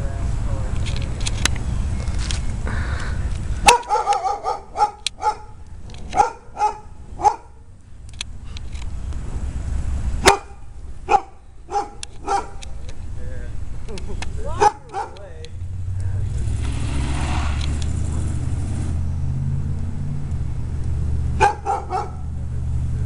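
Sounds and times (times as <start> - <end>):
dog barking: 3.6 - 7.6, 10.2 - 12.6, 14.6 - 15.2, 21.4 - 22.3.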